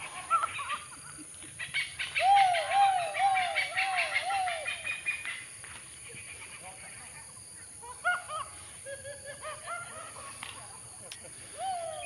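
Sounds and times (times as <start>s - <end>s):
bird hooting: 2.0s - 5.1s.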